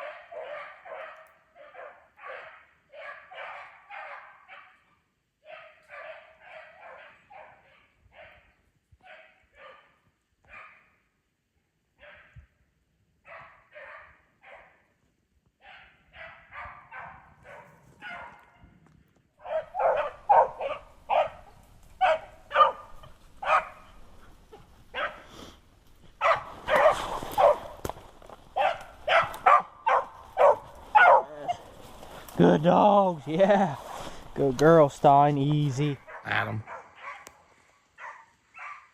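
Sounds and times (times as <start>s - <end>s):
dogs baying: 0.0s - 4.7s, 19.4s - 25.3s, 26.2s - 27.8s, 28.6s - 31.7s, 36.0s - 37.4s.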